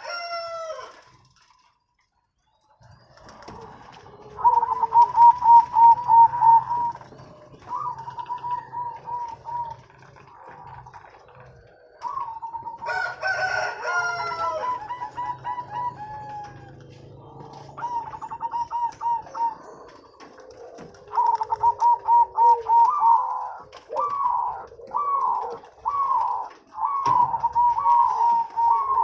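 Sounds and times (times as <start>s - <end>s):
doves cooing: 2.8s - 29.0s.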